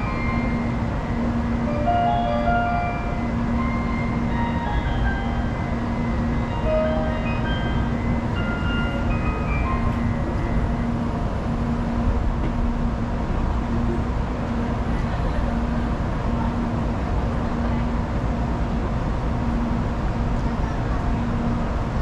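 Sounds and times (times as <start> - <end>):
train hum and rumble: 0.0 - 22.0
faint chime melody: 1.7 - 10.8.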